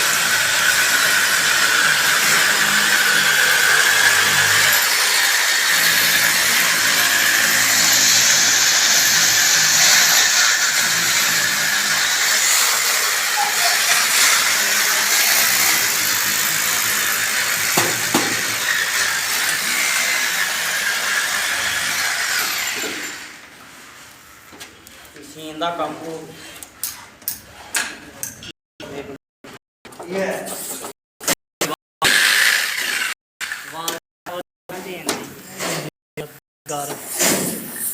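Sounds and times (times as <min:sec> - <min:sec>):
power tool whining: 0:00.0 - 0:23.4, 0:32.0 - 0:33.9.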